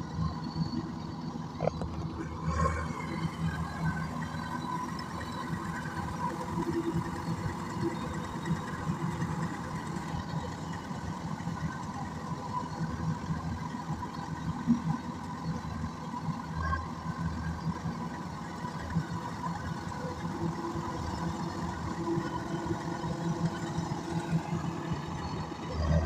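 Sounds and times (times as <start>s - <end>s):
diesel engine running: 19.2s - 26.0s.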